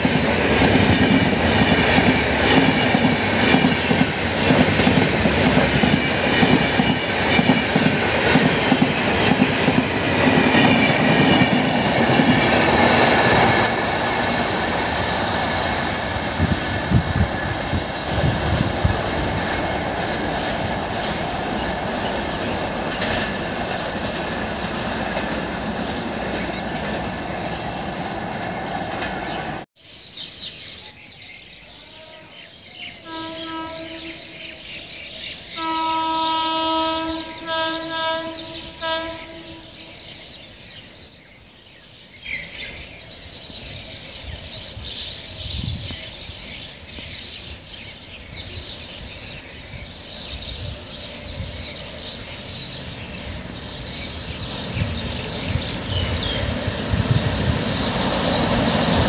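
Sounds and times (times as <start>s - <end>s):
train rumble and wheel clatter: 0.0s - 29.7s, 31.7s - 59.0s
train horn: 31.7s - 34.8s, 35.5s - 40.2s.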